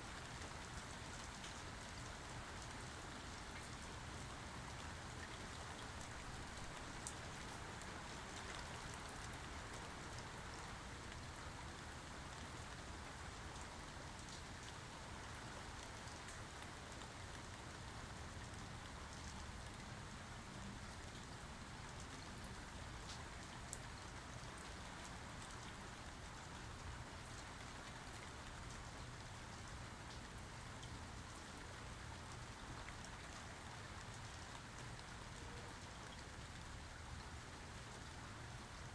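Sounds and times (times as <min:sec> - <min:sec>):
rain pattering on surfaces: 0:00.0 - 0:38.9.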